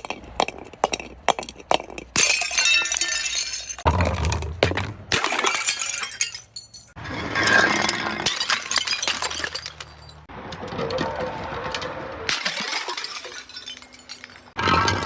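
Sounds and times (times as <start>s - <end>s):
glass shards crunching: 2.2s - 3.9s, 5.2s - 10.3s, 12.3s - 15.0s
glass bottles shattering: 2.2s - 10.3s, 12.3s - 15.0s.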